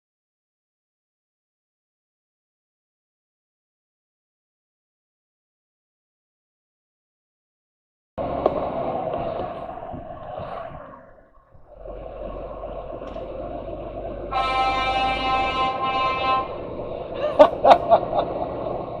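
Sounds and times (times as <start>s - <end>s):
vehicle rumble: 8.2s - 19.0s
horn steady note: 14.2s - 17.2s.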